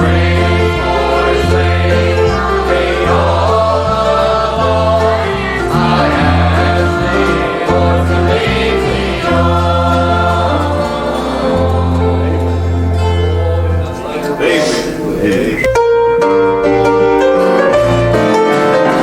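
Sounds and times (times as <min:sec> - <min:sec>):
choir singing: 0:00.0 - 0:15.7, 0:17.7 - 0:19.0
bass line: 0:00.0 - 0:16.0
instrumental accompaniment: 0:00.0 - 0:19.0.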